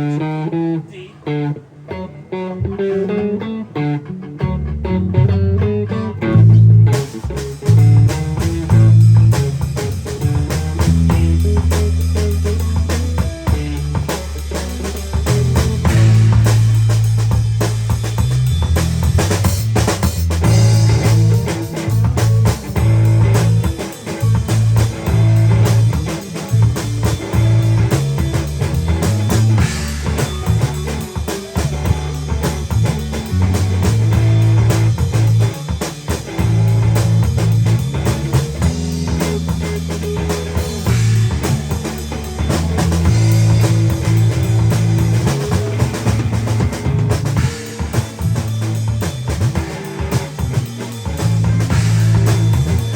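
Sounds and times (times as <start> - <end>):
blues band playing: 0.0 - 52.9.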